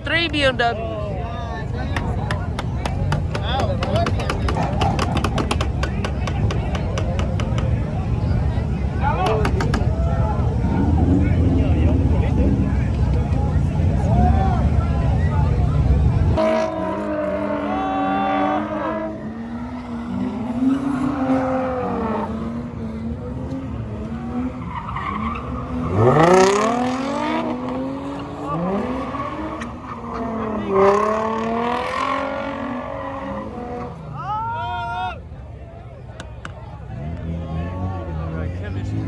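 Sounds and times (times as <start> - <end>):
car engines revving: 0.0 - 39.0
tyres squealing: 1.5 - 11.1.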